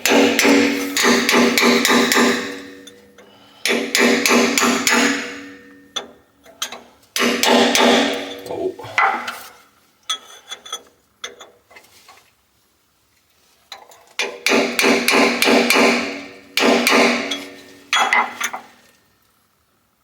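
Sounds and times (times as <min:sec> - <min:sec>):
hammering on steel tube: 0:00.0 - 0:02.8, 0:03.6 - 0:05.7, 0:14.4 - 0:17.4.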